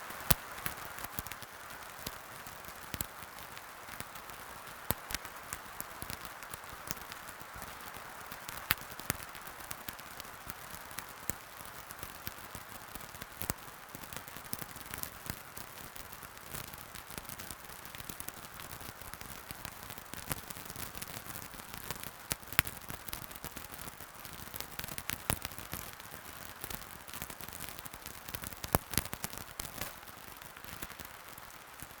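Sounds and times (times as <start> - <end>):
soft fire hiss: 0.0 - 32.0
wood fire crackling: 0.0 - 32.0
sharp pops of fire: 12.0 - 32.0.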